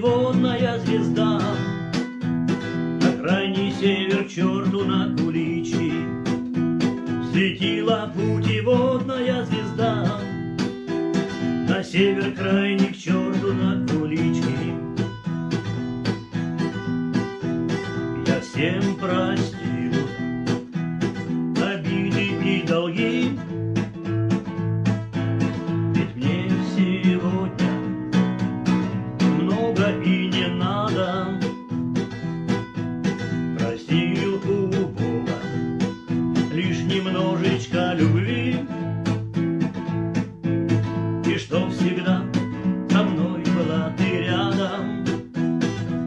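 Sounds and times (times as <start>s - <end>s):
acoustic guitar strumming: 0.0s - 46.0s.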